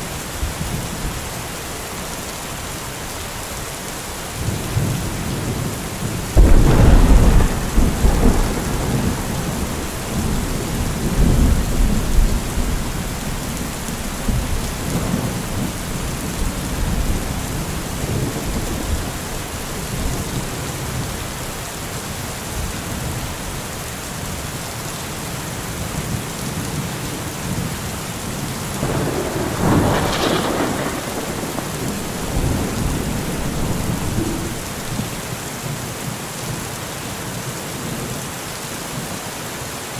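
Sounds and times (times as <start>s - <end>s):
heavy rain: 0.0s - 39.9s
thunder rumbling: 4.4s - 21.2s, 28.7s - 35.4s.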